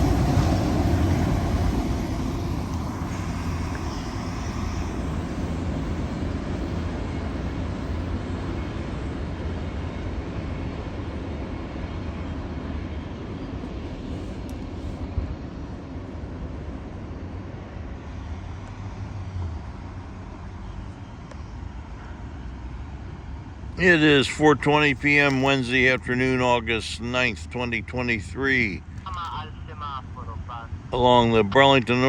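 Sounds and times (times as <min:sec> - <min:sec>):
freight train wheels rumbling: 0:00.0 - 0:19.5.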